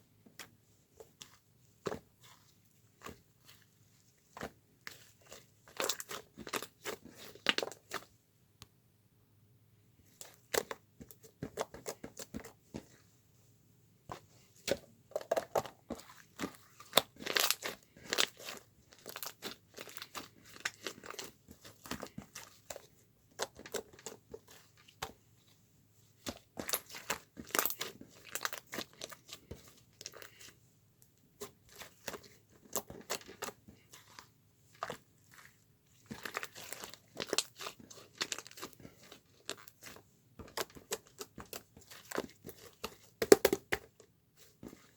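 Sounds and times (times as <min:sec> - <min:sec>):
crinkling and rustling: 0:14.1 - 0:44.9.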